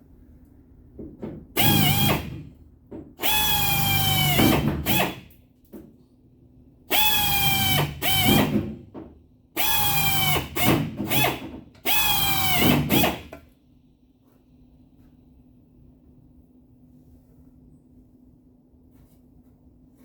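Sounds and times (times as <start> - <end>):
power drill whining: 1.6 - 2.4, 3.2 - 5.2, 6.9 - 8.5, 9.6 - 13.2.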